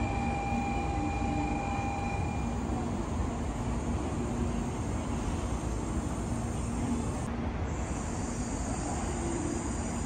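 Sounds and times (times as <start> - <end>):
faint steady hum: 0.0 - 10.0
train rumbling on tracks: 0.0 - 10.0.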